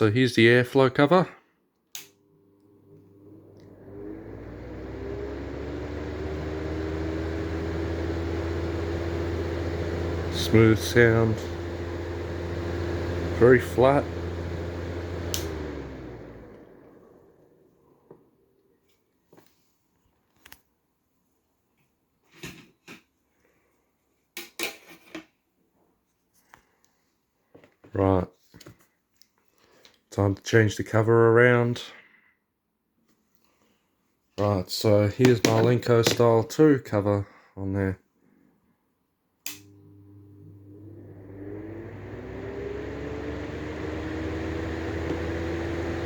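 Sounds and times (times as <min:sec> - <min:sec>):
exhaust fan whirring: 0:03.5 - 0:17.8, 0:39.5 - 0:46.0.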